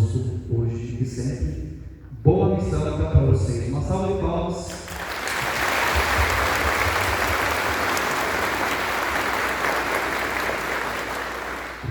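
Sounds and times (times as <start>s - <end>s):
congregation applauding: 4.7s - 11.9s.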